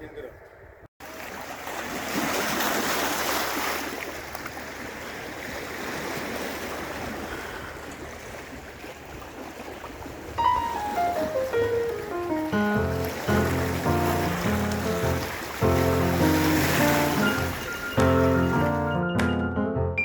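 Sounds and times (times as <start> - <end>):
wind: 0.0 - 19.0
rushing water: 1.0 - 19.0
music: 10.4 - 20.0.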